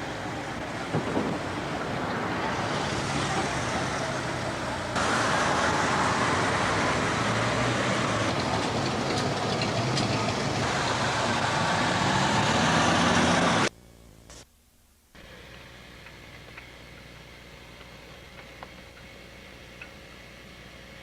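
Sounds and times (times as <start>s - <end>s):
low traffic rumble: 0.0s - 14.2s, 15.2s - 21.0s
faint hiss: 10.1s - 21.0s.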